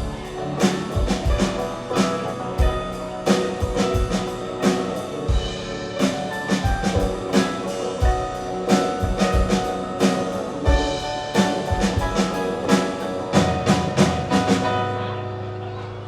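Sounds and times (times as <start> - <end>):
live band playing pop: 0.0 - 15.3
kick drum and cymbal hits: 5.3 - 6.0.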